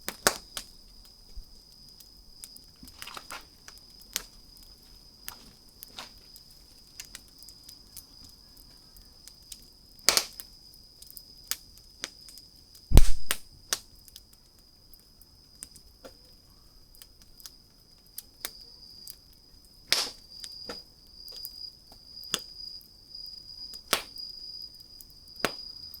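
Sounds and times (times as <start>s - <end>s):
campfire crackling and popping: 0.0s - 26.0s
deep thump: 12.9s - 13.4s.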